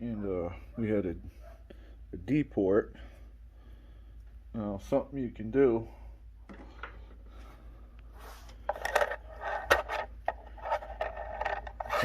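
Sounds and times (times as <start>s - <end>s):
scraping small metal parts: 8.6s - 12.0s.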